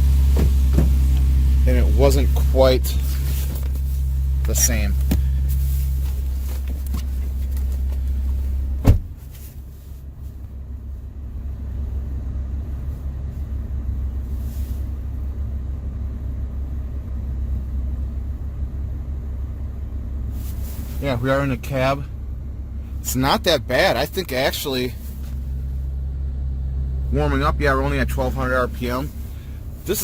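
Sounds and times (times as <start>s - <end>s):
truck engine idling: 0.0s - 30.0s
car door shutting: 0.1s - 1.4s, 6.2s - 9.6s.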